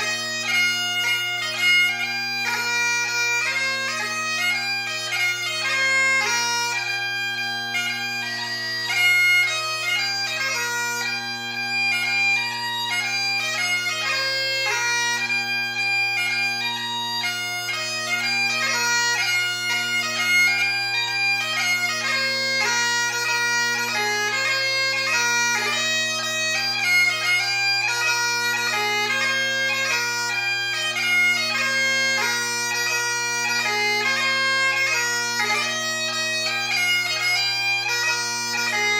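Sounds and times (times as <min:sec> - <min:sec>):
bagpipe chanter melody: 0:00.0 - 0:38.9
bagpipe drones: 0:00.0 - 0:38.9.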